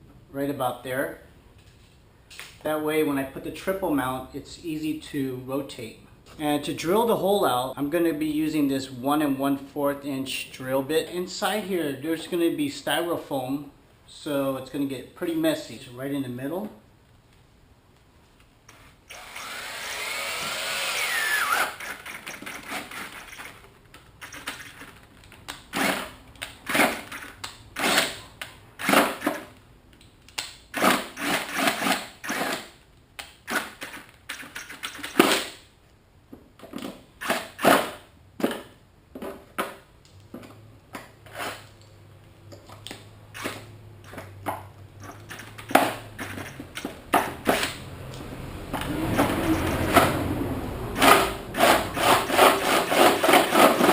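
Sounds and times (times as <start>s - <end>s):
power drill boring into plastic: 19.1s - 23.4s.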